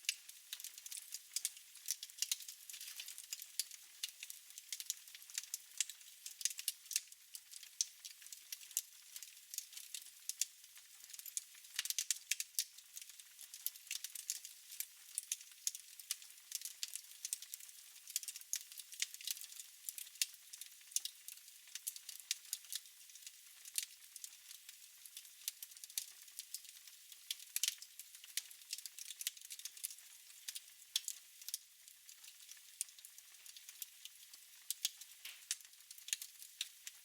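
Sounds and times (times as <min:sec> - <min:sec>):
fire snaps and pops: 0:00.0 - 0:37.0
fire crackling: 0:27.3 - 0:36.4.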